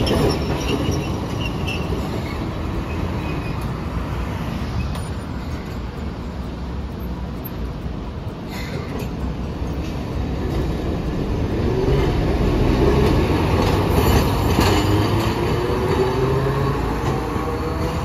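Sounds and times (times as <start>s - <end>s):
wheel squeal: 0.0s - 3.8s
tram wheels clattering over points: 0.0s - 4.3s, 5.0s - 18.0s.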